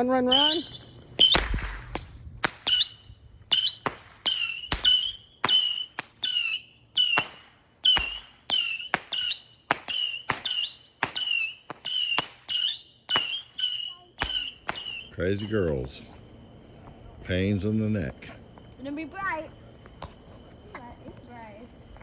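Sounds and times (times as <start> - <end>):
firework whistling squeals: 0.0 - 16.5, 18.8 - 22.0
firework pops: 0.3 - 15.8, 19.7 - 21.4.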